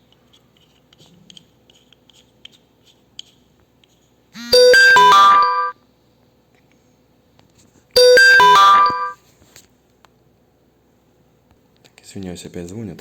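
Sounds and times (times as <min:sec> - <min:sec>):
electronic ringtone chime melody: 0:04.4 - 0:05.7, 0:08.0 - 0:09.2.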